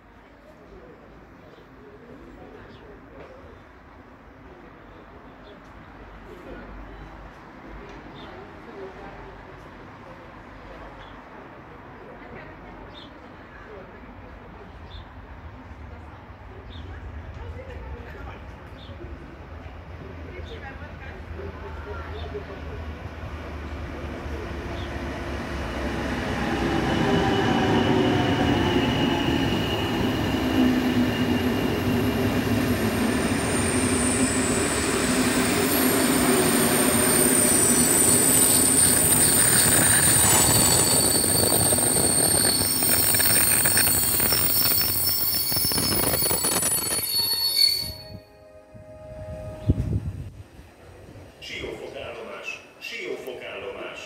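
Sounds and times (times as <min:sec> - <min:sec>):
metallic wheel squealing: 0:35.4 - 0:48.3.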